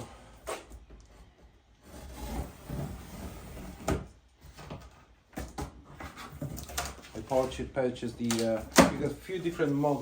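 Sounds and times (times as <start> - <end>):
cardboard rubbing and scraping: 1.8 - 4.0, 9.0 - 10.0.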